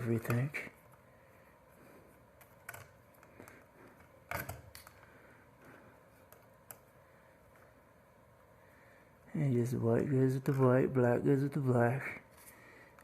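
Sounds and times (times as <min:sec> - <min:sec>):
light fixture parts clicking: 0:02.3 - 0:05.1, 0:06.2 - 0:07.0.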